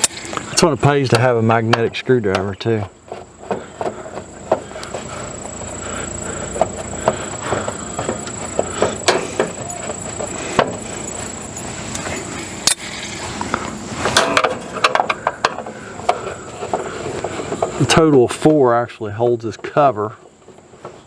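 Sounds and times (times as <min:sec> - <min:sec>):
hand tools clicking and knocking: 0:00.0 - 0:18.6, 0:19.4 - 0:21.0
steady high-pitched whine: 0:00.0 - 0:21.0
sheet-metal parts handled: 0:08.0 - 0:17.9.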